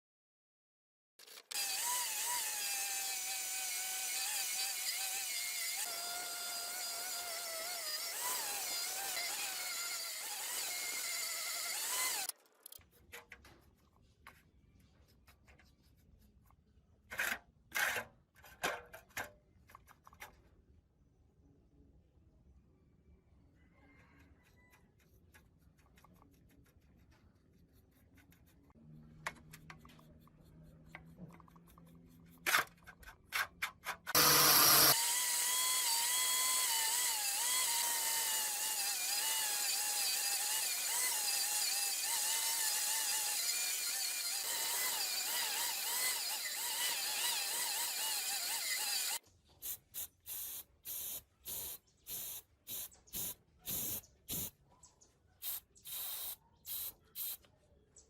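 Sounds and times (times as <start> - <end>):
power tool whining: 1.4 - 12.3, 34.1 - 49.2
short hissing bursts: 49.6 - 54.5, 55.4 - 57.4.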